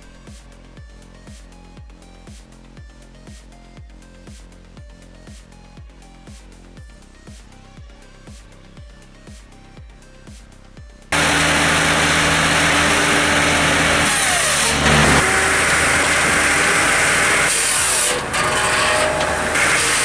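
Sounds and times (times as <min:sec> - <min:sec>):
engine running: 0:11.1 - 0:20.0
loud hiss: 0:11.2 - 0:20.0.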